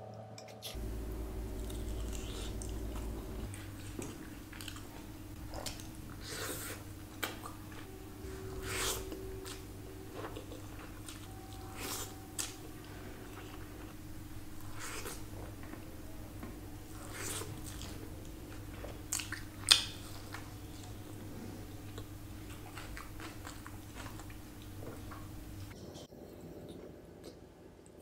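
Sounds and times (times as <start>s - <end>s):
steady low hum: 0.0s - 28.0s
person chewing and smacking: 1.1s - 7.9s, 8.7s - 14.0s, 17.0s - 21.0s, 21.8s - 25.8s.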